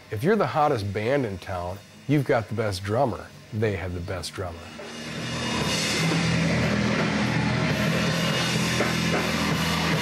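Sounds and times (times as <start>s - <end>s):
heavy rock band playing: 4.7s - 10.0s.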